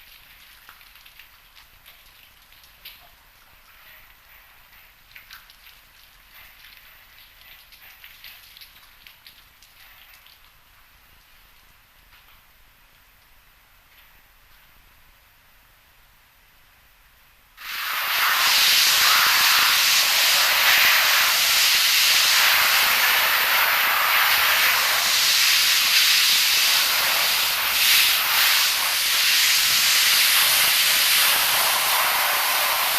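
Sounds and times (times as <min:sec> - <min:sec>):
loud steady hiss: 0:12.6 - 0:32.9.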